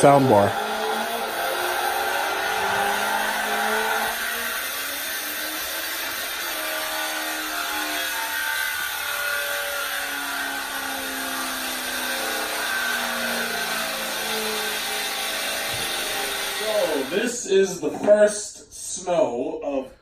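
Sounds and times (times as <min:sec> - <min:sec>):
car engine revving: 0:00.0 - 0:05.7.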